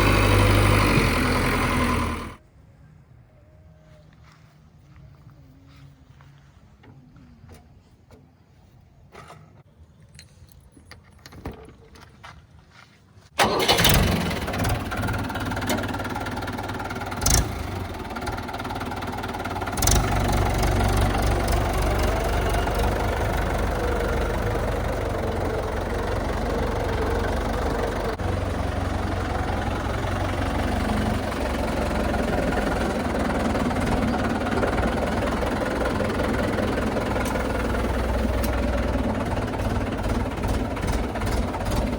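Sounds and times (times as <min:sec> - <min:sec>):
diesel engine running: 0:00.0 - 0:02.4, 0:13.4 - 0:41.9.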